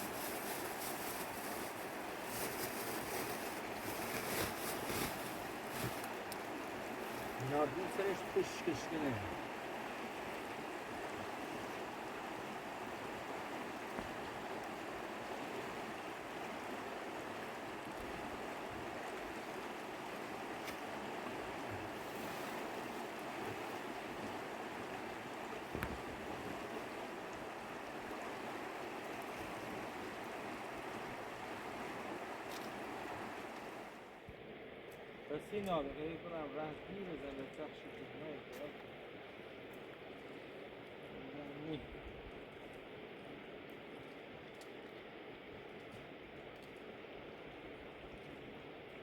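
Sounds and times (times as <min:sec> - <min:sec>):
river rushing: 0:00.0 - 0:34.1.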